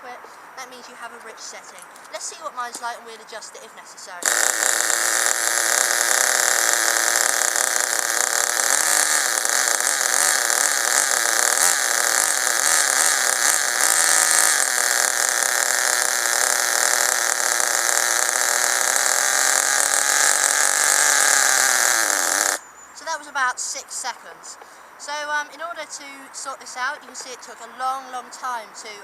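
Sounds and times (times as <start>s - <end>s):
model engine idling: 4.2s - 22.6s.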